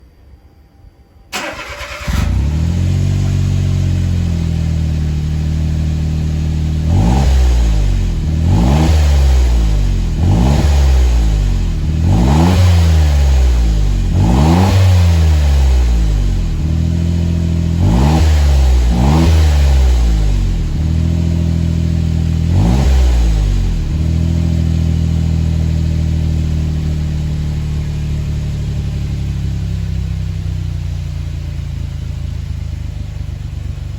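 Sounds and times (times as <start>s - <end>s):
car engine idling: 1.3s - 33.9s
car engine starting: 1.3s - 33.9s
car engine revs: 1.4s - 32.8s.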